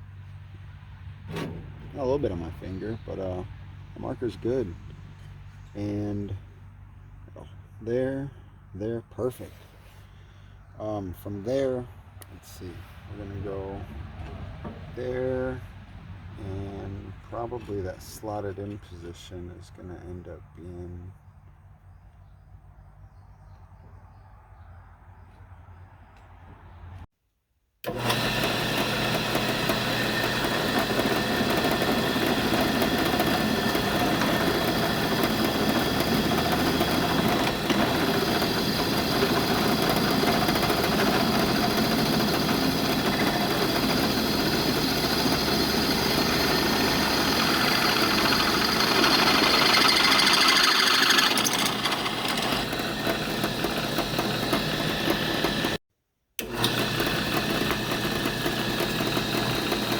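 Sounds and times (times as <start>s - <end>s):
power tool cutting metal: 27.9s - 55.8s, 56.4s - 59.9s.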